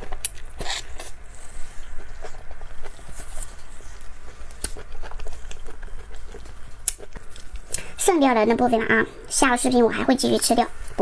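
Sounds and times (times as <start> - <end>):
wet squishy chewing: 0.0 - 7.9.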